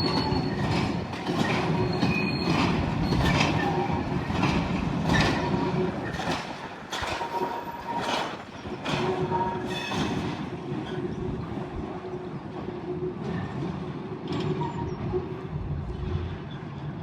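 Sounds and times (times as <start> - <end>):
wheels clacking over rail joints: 0.0 - 11.7
train rumbling: 0.0 - 17.0.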